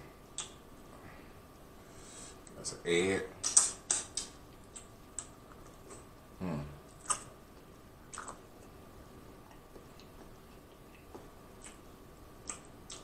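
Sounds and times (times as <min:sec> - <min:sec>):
closed-mouth hum: 0:00.0 - 0:13.0
chewing with lip smacks: 0:06.9 - 0:08.8, 0:09.4 - 0:13.0.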